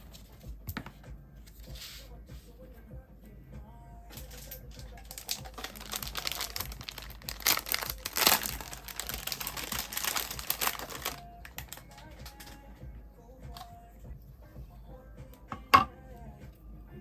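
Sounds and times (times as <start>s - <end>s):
packaging crinkling: 4.9s - 12.6s.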